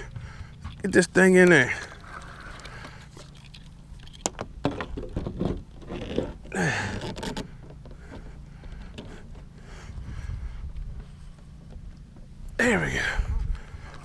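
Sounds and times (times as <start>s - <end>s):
steady low hum: 0.0s - 14.0s
scraping and splashing: 0.2s - 8.2s.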